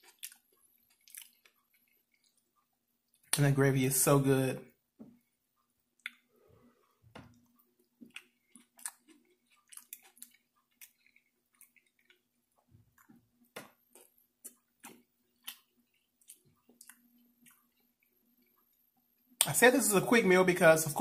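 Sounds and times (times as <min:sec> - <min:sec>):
wet mouth clicks and smacks: 0:00.0 - 0:02.4, 0:08.0 - 0:12.2
close chewing: 0:00.0 - 0:03.4, 0:07.3 - 0:13.2, 0:13.9 - 0:18.7.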